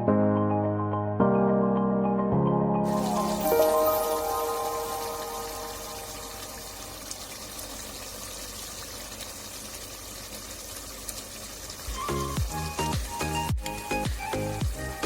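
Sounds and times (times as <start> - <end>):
music: 0.0 - 6.7, 11.9 - 15.0
liquid sizzling in a pan: 2.9 - 15.0.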